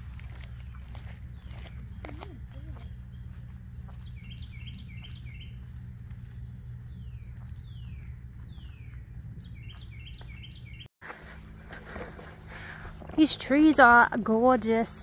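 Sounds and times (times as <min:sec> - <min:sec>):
low rumble: 0:00.0 - 0:10.8
songbird singing: 0:00.0 - 0:10.9.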